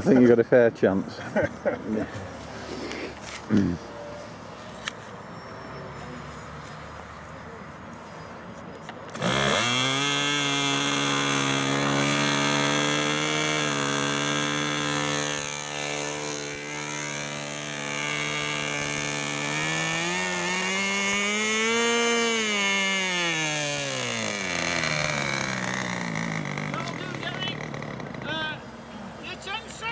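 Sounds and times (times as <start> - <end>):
model aircraft engine: 9.1 - 28.5.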